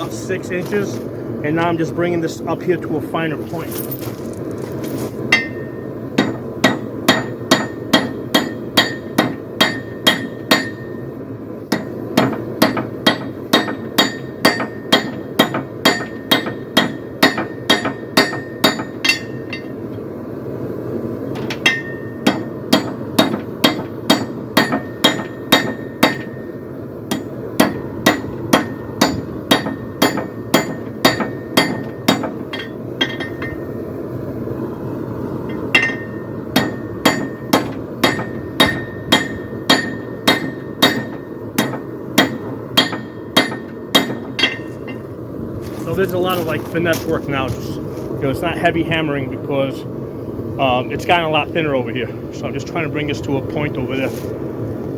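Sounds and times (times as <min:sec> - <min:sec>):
hammer ringing on steel anvil: 0:05.3 - 0:11.0, 0:11.7 - 0:19.7, 0:35.8 - 0:45.0.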